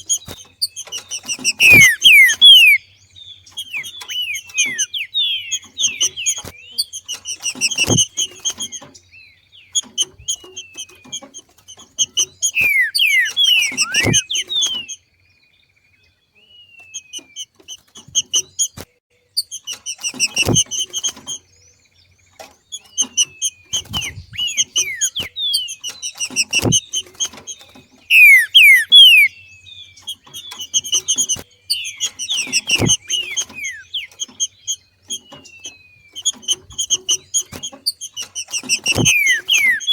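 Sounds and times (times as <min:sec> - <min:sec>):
bird chattering calls: 0:00.0 - 0:09.0, 0:09.6 - 0:15.0, 0:22.7 - 0:39.9.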